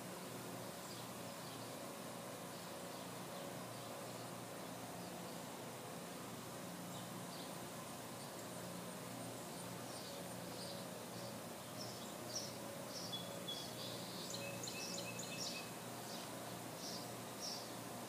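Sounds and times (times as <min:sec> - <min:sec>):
small birds chirping: 0:00.6 - 0:06.2, 0:06.8 - 0:18.0.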